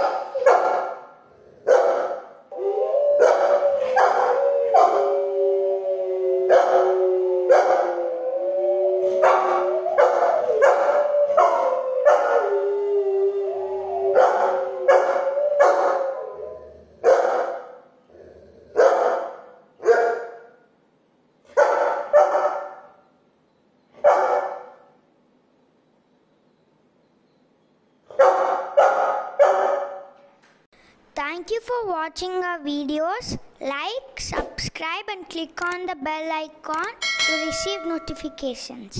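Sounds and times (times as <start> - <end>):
dogs barking: 0.0 - 2.4, 3.2 - 5.2, 6.5 - 8.0, 9.1 - 12.5, 14.1 - 16.2, 17.0 - 17.8, 18.8 - 20.5, 21.5 - 23.0, 24.0 - 24.9, 28.1 - 30.2
dogs howling: 1.7 - 17.6.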